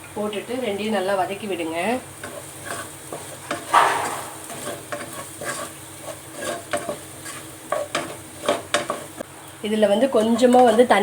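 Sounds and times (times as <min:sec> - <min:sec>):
onions sizzling in oil: 0:00.0 - 0:11.0
spatula scraping and tapping pan: 0:02.2 - 0:09.2, 0:10.1 - 0:11.0.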